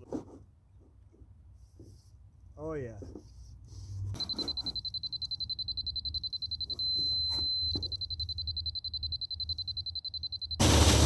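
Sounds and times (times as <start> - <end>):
receiver beeping rapidly: 4.2 - 11.0
solid steady tone: 4.2 - 11.0.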